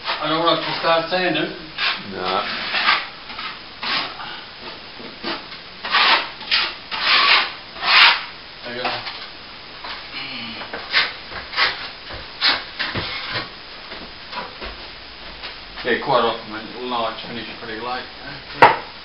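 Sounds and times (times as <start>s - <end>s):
hand sanding plaster wall: 0.0s - 8.3s, 10.8s - 13.5s.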